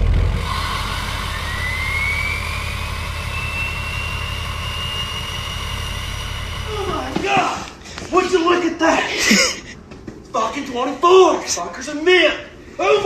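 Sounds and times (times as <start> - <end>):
diesel truck engine rumble: 0.0 - 7.2
turbocharger whistle: 0.0 - 7.2.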